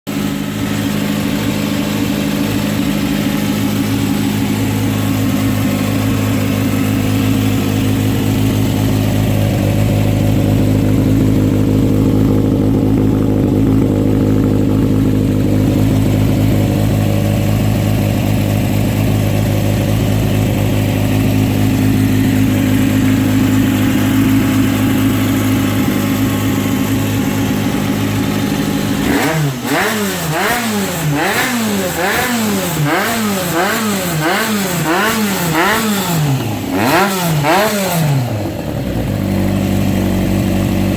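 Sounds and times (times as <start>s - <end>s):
motorcycle engine idling and revving: 0.0s - 40.9s.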